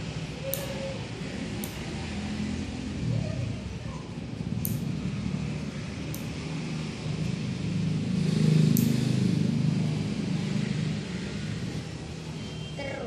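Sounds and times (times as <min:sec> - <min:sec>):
nail clipper snipping: 0:00.5 - 0:00.8, 0:01.6 - 0:01.9, 0:04.6 - 0:04.9, 0:06.1 - 0:06.4, 0:08.7 - 0:09.1.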